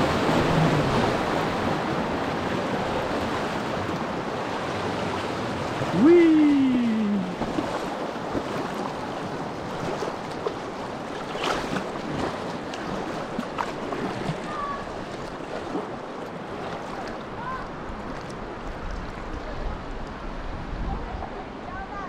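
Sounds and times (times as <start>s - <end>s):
creek water rushing and splashing: 0.0s - 22.0s
sharp water splashes: 5.2s - 19.4s.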